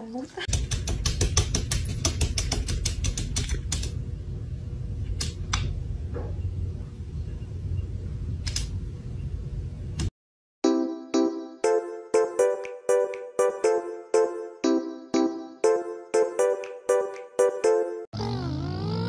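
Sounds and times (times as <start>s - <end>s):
steady low hum: 0.6s - 10.1s.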